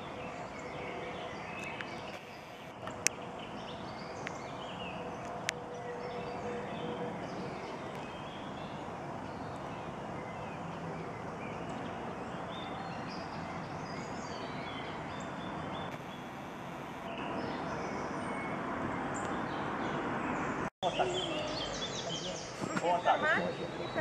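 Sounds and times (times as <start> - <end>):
birds singing and calling: 0.0 - 24.0
steady background hiss: 13.9 - 17.8.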